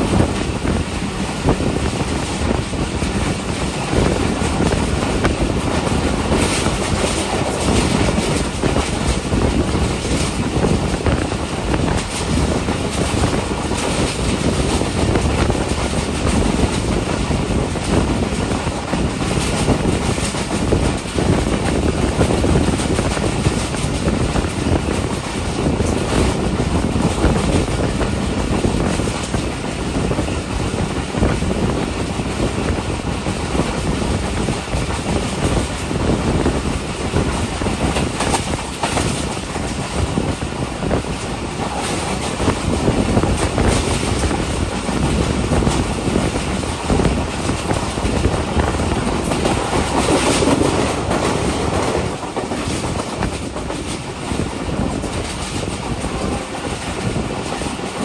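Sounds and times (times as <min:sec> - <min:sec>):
train wheels rumbling on rail: 0:00.0 - 0:58.0
clacks and knocks: 0:34.2 - 0:58.0.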